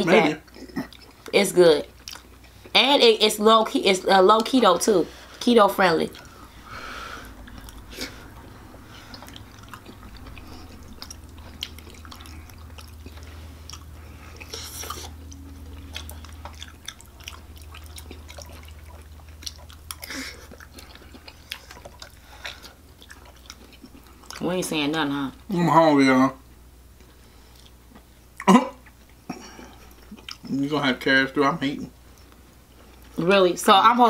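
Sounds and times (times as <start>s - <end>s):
wet chewing: 0.4s - 2.8s, 6.1s - 25.1s, 27.0s - 30.6s.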